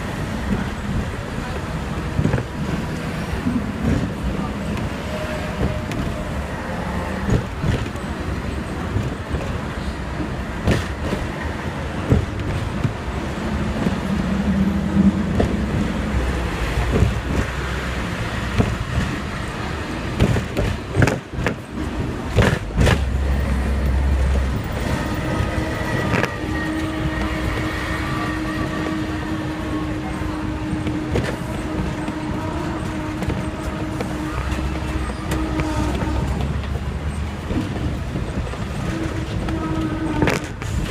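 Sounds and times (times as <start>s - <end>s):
tram rumbling on rails: 0.0s - 40.9s
knocks and clatters: 7.2s - 8.2s, 8.8s - 14.2s, 15.0s - 27.8s.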